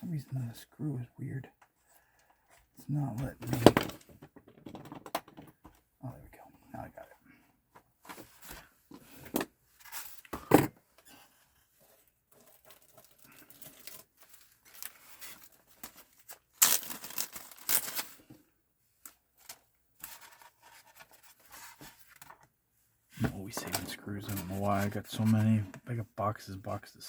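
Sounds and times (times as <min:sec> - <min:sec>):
rustling tearing noise: 0:12.6 - 0:18.3.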